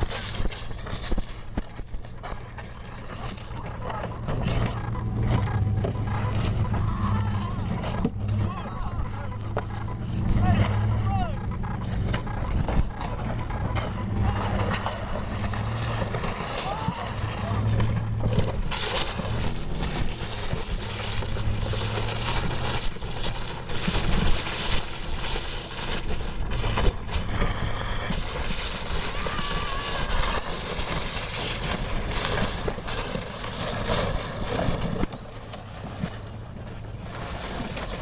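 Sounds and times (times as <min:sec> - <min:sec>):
motorboat engine hum: 0:00.0 - 0:38.0
rush of wind and water: 0:12.2 - 0:38.0.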